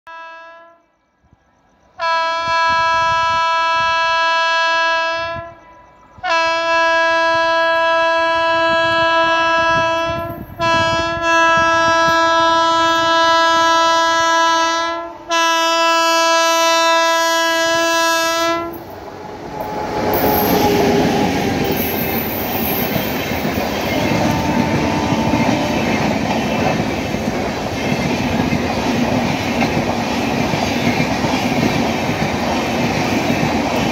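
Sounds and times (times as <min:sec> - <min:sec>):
locomotive horn blasts: 0:00.1 - 0:00.9, 0:02.0 - 0:18.8, 0:23.8 - 0:26.6
train wheels clattering on rails: 0:18.7 - 0:33.9.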